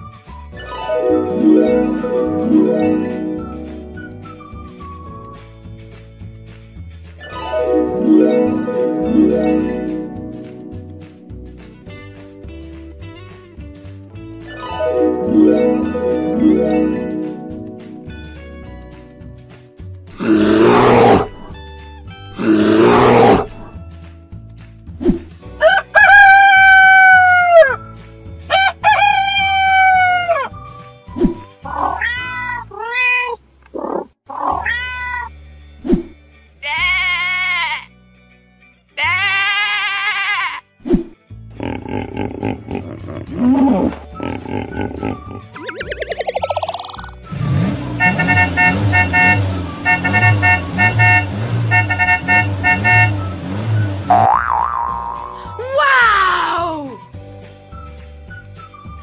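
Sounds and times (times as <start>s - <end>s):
rooster crowing: 25.6s - 27.8s, 28.5s - 30.5s
wobbling whistle-like glide: 45.6s - 47.2s
engines revving: 47.2s - 54.3s
cartoon car horns beeping: 47.3s - 54.4s.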